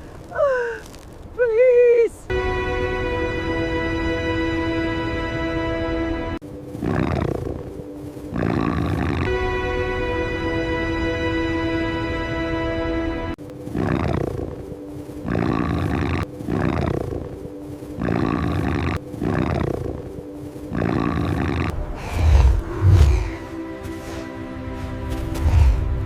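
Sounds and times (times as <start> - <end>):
held music chord: 2.3 - 6.5, 7.7 - 13.5, 19.8 - 26.0
wolf snarling and growling: 20.7 - 23.4.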